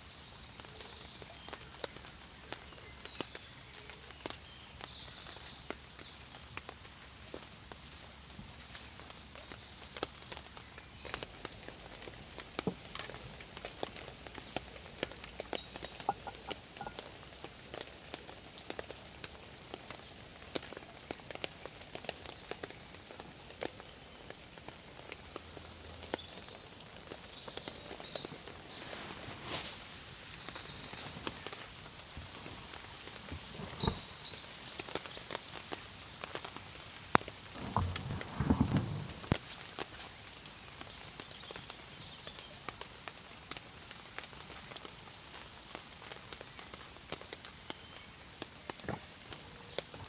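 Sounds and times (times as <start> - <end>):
rain hiss: 0.0 - 50.0
raindrops ticking on surface: 0.0 - 50.0.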